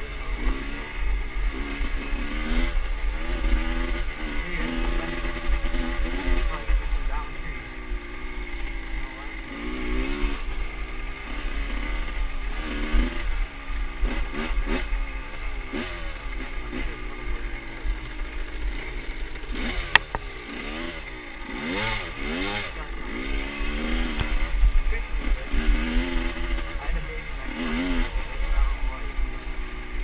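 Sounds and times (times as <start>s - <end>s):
motorcycle engine revving: 0.0s - 30.0s
sharp click: 19.8s - 20.3s.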